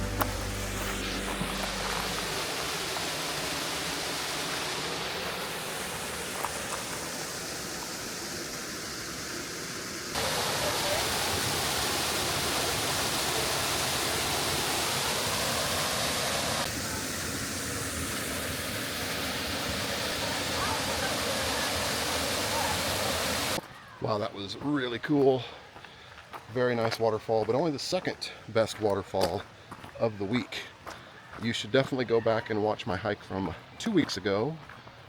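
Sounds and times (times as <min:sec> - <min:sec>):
waterfall rushing: 0:00.0 - 0:23.6.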